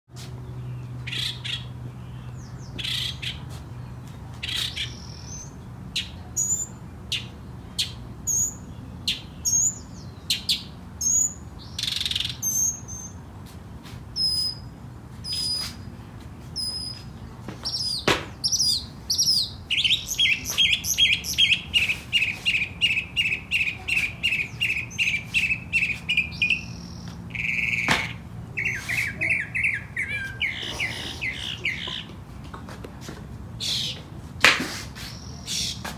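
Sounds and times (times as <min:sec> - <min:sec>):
songbird chirping and singing: 0:00.6 - 0:13.2, 0:16.6 - 0:28.0, 0:28.6 - 0:32.1.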